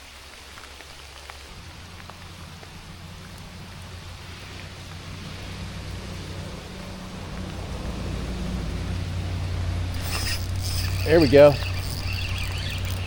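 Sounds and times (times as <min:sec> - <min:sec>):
steady rain falling: 0:00.0 - 0:13.0
raindrop taps: 0:00.6 - 0:03.8.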